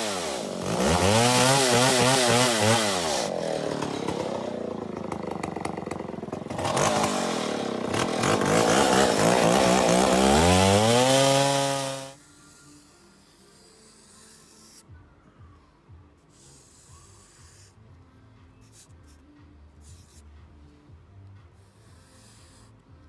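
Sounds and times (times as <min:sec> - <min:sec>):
chainsaw engine revving: 0:00.0 - 0:12.2.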